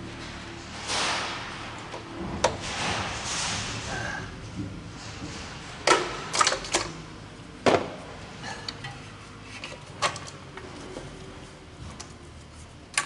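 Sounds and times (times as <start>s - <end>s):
hard parts knocking and clicking: 4.5s - 7.0s.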